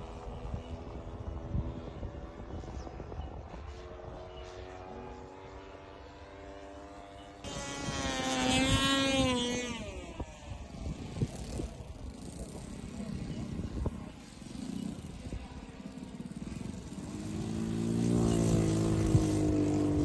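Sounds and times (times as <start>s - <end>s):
model airplane engine droning: 0.0s - 20.0s.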